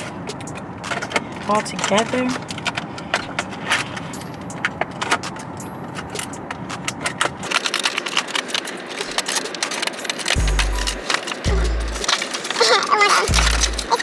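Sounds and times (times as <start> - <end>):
packaging rustling and clicking: 0.0 - 14.0
low hum: 10.4 - 12.1.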